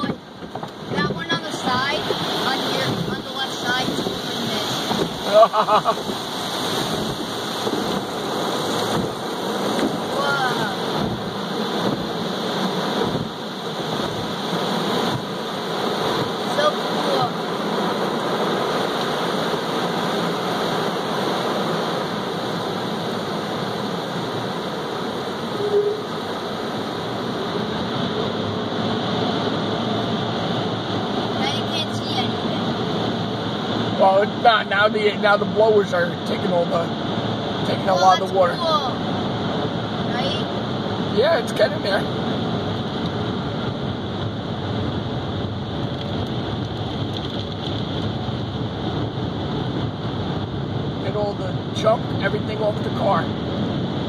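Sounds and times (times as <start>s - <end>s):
car wash water spray: 0.0s - 54.0s.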